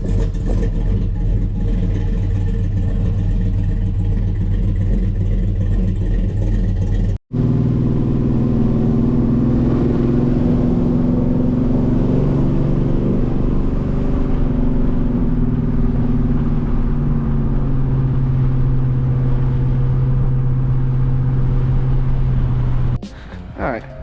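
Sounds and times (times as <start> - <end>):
vee eight engine idling: 23.0 - 24.0.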